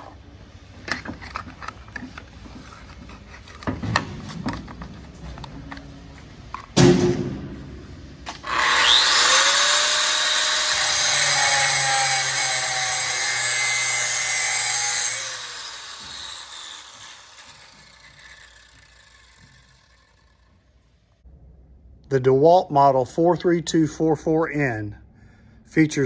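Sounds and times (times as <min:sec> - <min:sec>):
angle grinder cutting metal: 0:08.3 - 0:20.6.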